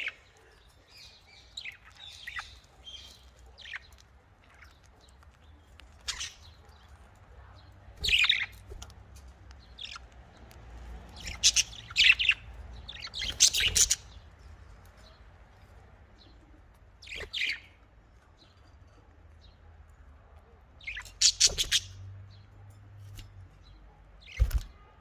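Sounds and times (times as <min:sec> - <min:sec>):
budgerigars chirping and squawking: 0:00.0 - 0:15.3, 0:17.0 - 0:17.9, 0:20.8 - 0:22.4.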